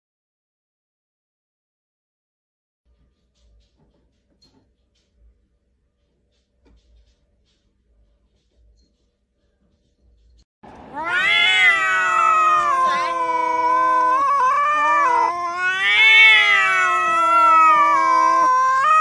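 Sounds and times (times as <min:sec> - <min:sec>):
cat yowling: 0:10.9 - 0:19.0.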